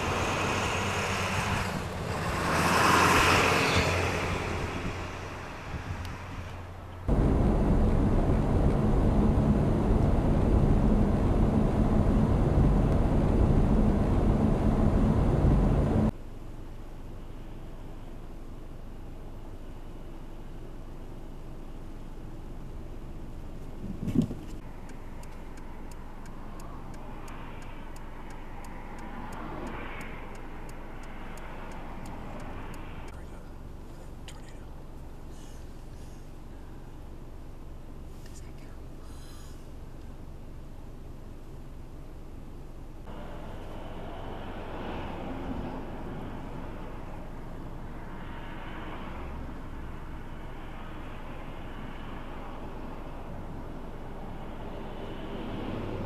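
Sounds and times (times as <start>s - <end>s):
highway traffic rushing: 0.0s - 16.2s, 23.7s - 37.3s, 43.0s - 56.0s.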